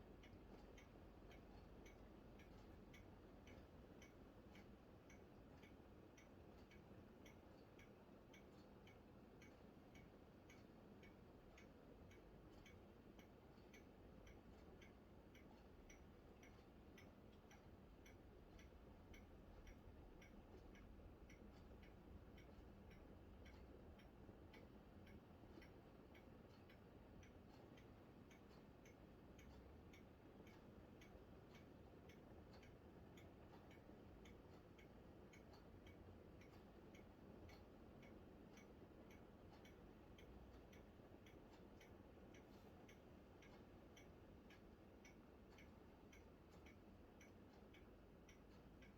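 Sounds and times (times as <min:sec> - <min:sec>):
faint regular ticking: 0:00.0 - 0:48.9.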